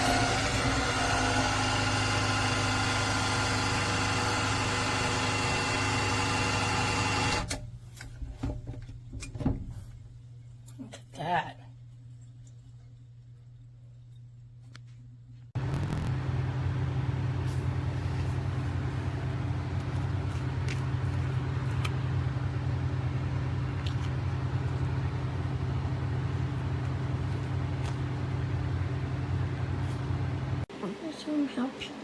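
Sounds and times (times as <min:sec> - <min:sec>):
electric dog dryer blowing air: 0:00.0 - 0:07.5.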